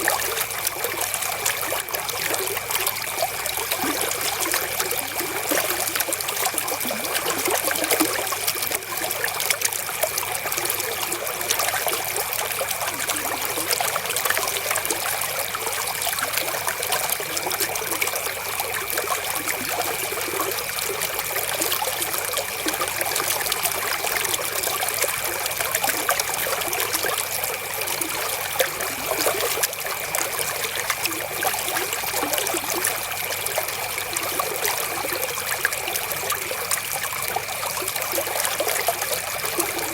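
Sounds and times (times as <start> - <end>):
river babbling over stones: 0.0 - 14.9.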